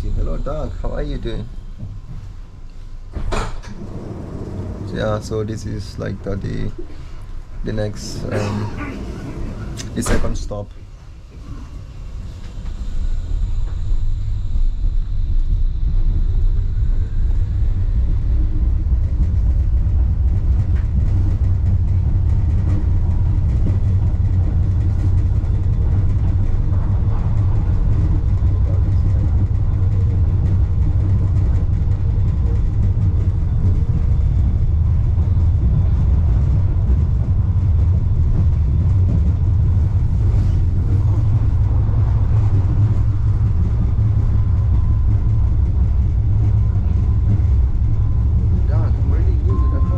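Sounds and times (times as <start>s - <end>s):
faint high whine: 0.0s - 3.1s, 11.6s - 18.8s, 46.4s - 49.9s
suspension railway car rumble: 0.0s - 49.9s.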